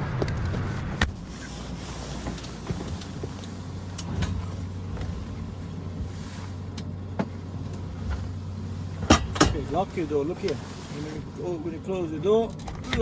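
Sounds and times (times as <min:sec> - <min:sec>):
low engine hum: 0:00.0 - 0:13.0
light clicks and knocks: 0:09.0 - 0:10.6.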